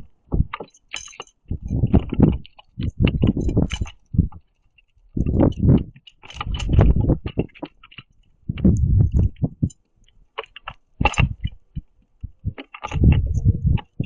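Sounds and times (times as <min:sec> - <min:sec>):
birds pecking seed on feeder: 0:00.1 - 0:14.0
dull thumps and sharp taps: 0:00.3 - 0:00.7.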